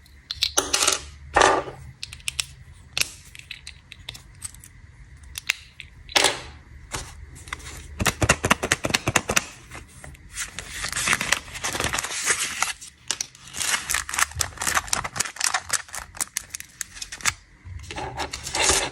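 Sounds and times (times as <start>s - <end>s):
plastic packaging crinkling: 6.9s - 18.9s.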